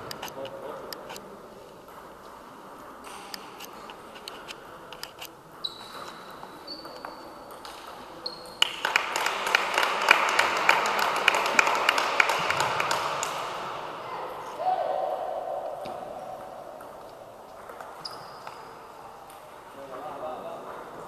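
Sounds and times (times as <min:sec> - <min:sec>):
brief high squeaks: 0:05.6 - 0:07.2, 0:18.0 - 0:18.8.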